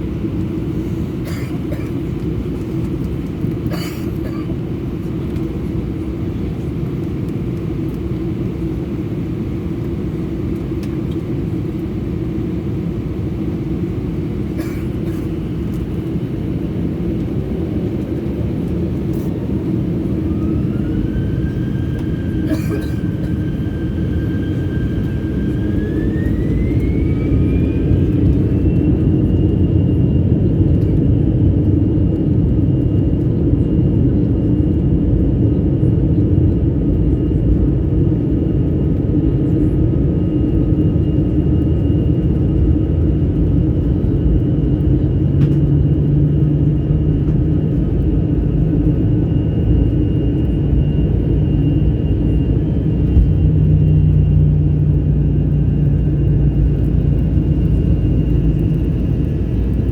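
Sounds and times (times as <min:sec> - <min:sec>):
engine whine: 0:00.0 - 0:59.9
jet engines spooling up: 0:18.0 - 0:31.2
loud engine rumble: 0:50.2 - 0:59.9.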